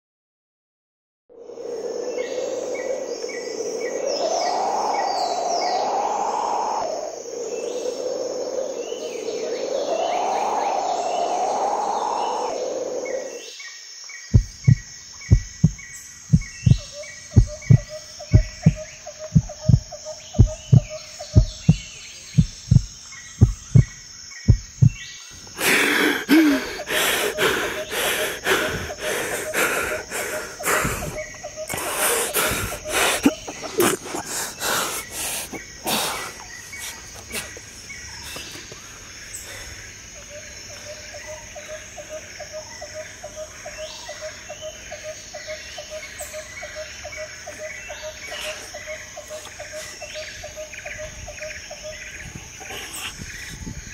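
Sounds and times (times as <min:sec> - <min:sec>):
crickets chirping: 0:01.3 - 0:53.9
heartbeat thumps: 0:14.3 - 0:25.0, 0:32.4 - 0:33.4.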